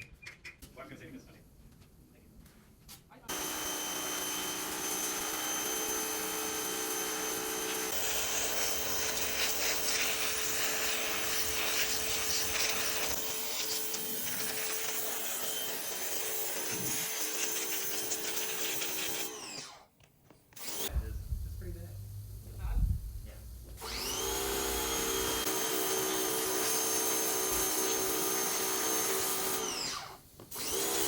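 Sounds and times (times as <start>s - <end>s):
power tool whining: 3.3s - 19.9s, 20.5s - 21.1s, 23.6s - 31.0s.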